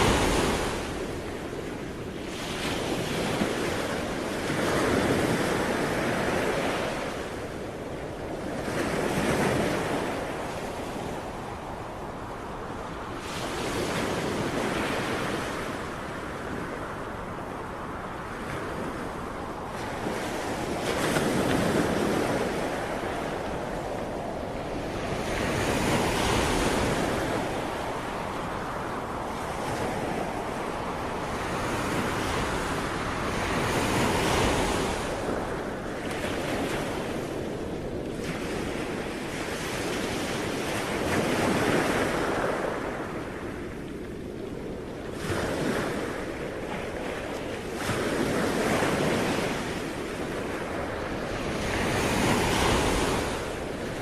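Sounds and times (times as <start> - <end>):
ocean waves breaking on shore: 0.0 - 54.0
wind: 0.0 - 54.0.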